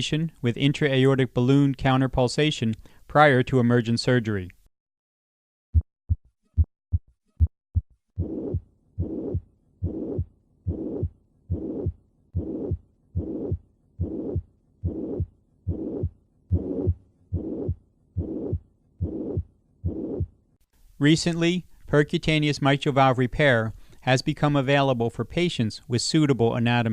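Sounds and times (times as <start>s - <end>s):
heartbeats with murmur: 5.8s - 20.4s.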